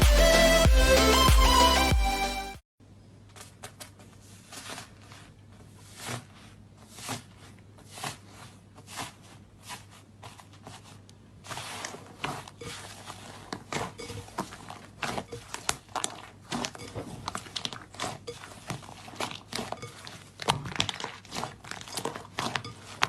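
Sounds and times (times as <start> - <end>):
slime crackling and popping: 14.4 - 23.0.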